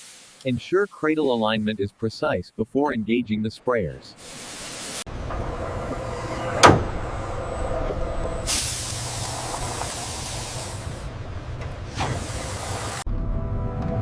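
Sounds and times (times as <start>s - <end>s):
sprayer hissing: 4.2s - 5.1s, 8.5s - 11.0s.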